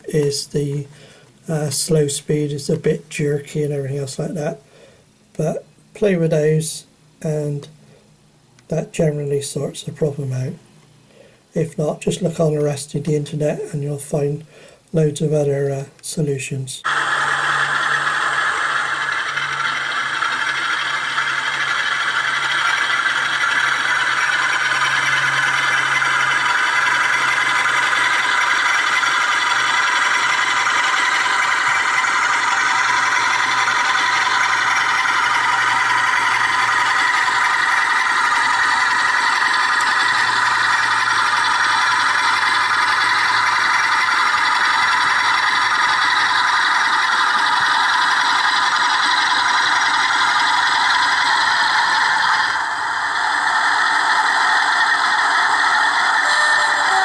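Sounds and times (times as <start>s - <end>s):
model train running on track: 0.0s - 4.6s, 11.6s - 57.0s
diesel engine sound from speaker: 16.8s - 57.0s.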